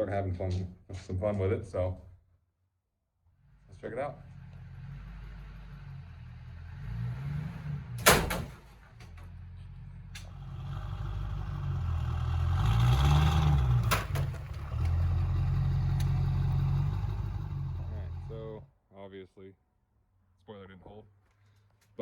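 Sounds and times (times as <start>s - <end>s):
diesel pickup engine revving: 3.4s - 18.7s
loud sharp metallic bang: 8.0s - 8.7s.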